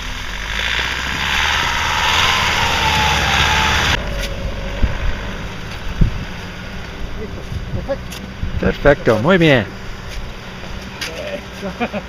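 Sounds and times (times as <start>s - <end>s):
vehicle engine revving with whine: 0.0s - 11.6s
low engine rumble: 0.0s - 12.0s.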